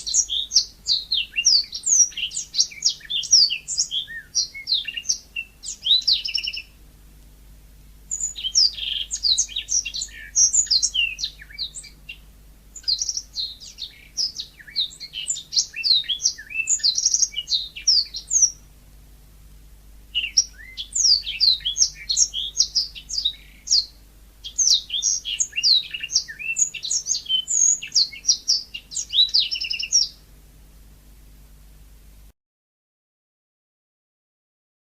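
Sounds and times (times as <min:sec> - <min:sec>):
canary singing chirps and trills: 0:00.0 - 0:06.8, 0:08.1 - 0:18.8, 0:20.1 - 0:30.3.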